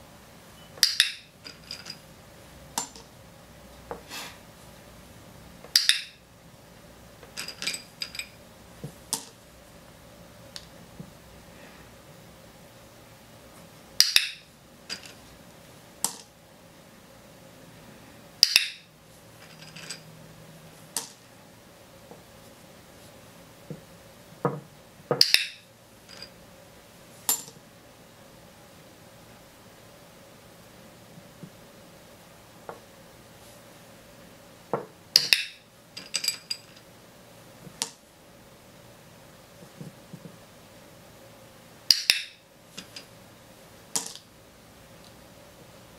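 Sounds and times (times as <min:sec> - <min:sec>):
small objects tapping on tabletop: 0:44.0 - 0:44.3.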